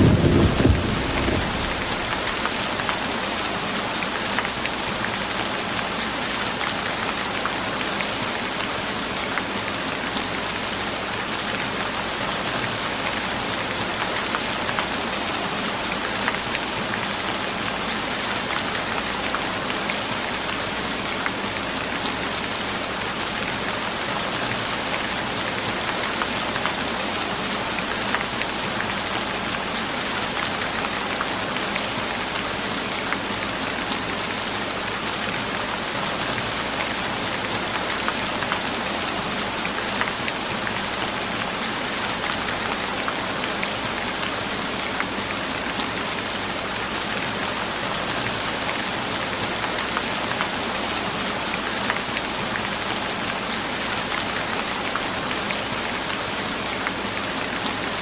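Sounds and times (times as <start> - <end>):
deep rushing sound: 0.0 - 2.5
rain pattering: 0.0 - 58.0.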